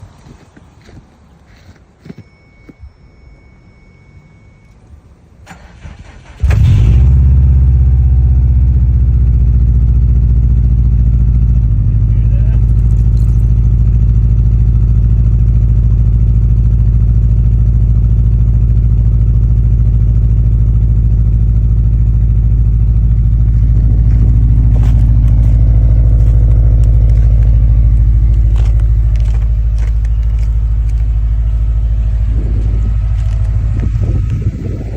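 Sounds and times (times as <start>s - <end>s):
weird engine sound: 0.0s - 34.9s
car engine idling: 4.1s - 34.9s
sharp clicks: 32.6s - 34.4s.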